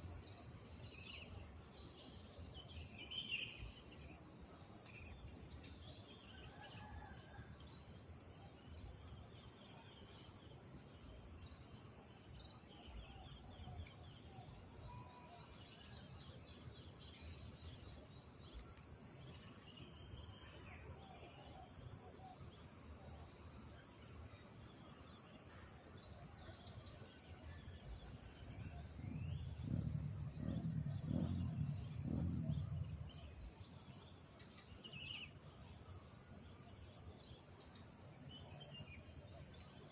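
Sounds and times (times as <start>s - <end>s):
high insect drone: 0.0s - 39.9s
low rumble: 28.8s - 33.6s.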